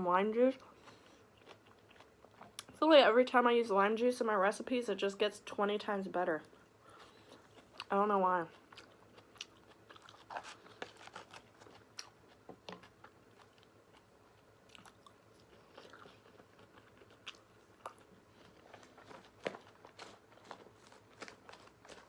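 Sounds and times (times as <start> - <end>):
chewing and mouth smacks: 6.9 - 7.9, 8.5 - 22.0.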